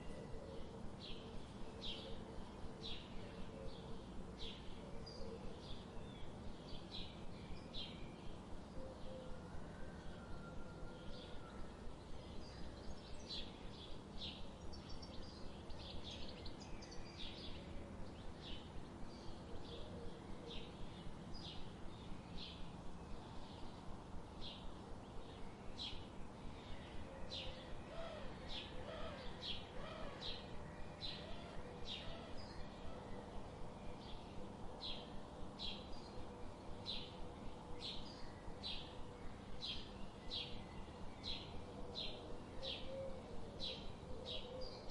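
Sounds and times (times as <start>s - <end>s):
lower gliding bird calls: 27.2s - 33.3s.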